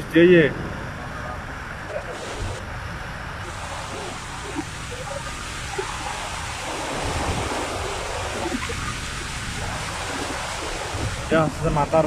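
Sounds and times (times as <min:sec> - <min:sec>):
running floodwater: 0:01.6 - 0:12.0
heavy rain: 0:01.8 - 0:12.0.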